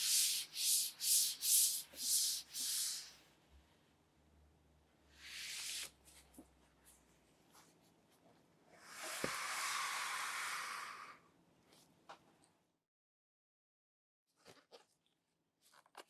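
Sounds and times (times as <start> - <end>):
hand rubbing friction noise: 0.0 - 3.2.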